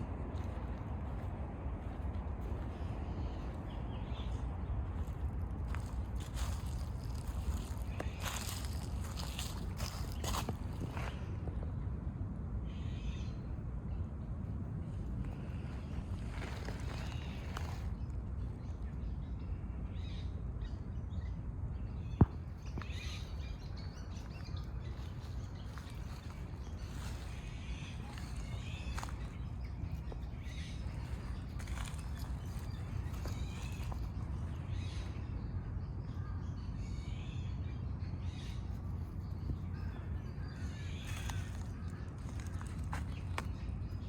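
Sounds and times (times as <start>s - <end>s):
birds calling: 0.0s - 11.3s, 15.2s - 20.8s, 21.9s - 44.0s
low rumble: 0.0s - 20.0s
low background rumble: 0.0s - 44.0s.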